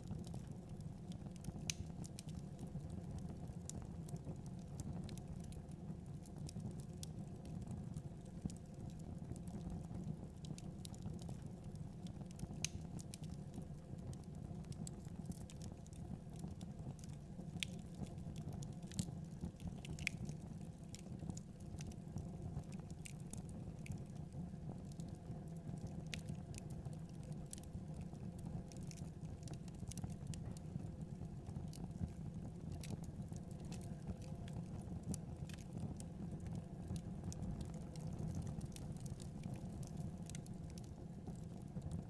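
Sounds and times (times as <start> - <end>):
fire crackling and popping: 0.0 - 42.0
fire rumbling: 31.4 - 42.0.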